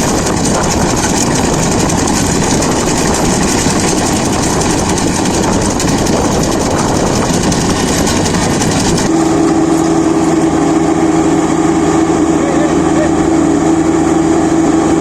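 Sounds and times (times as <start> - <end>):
combine harvester running: 0.0 - 15.0.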